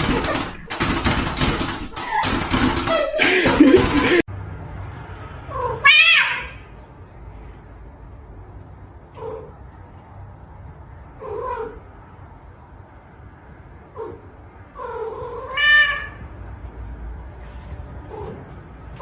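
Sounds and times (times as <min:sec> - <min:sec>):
cat meowing: 0:05.5 - 0:06.6, 0:14.8 - 0:16.2.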